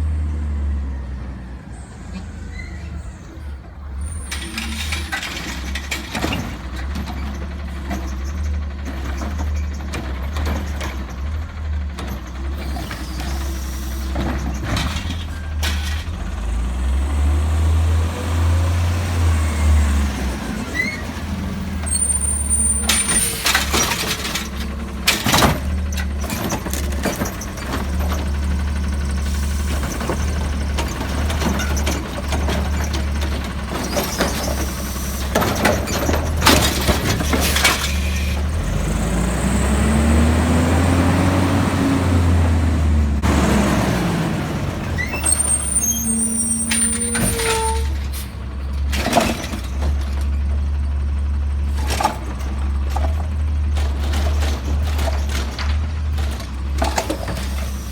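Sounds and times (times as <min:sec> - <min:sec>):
garbage truck engine running: 0:00.0 - 0:57.9
bangs from collection work: 0:29.6 - 0:38.5.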